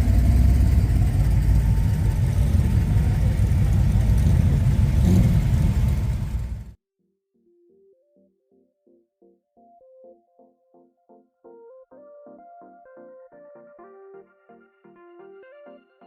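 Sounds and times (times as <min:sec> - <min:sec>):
car engine running: 0:00.0 - 0:06.8.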